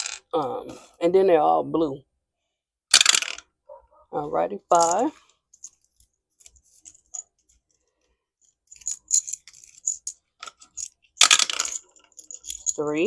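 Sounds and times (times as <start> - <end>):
dice and game pieces clicking: 8.7 - 13.0
dice rattle: 8.7 - 13.0.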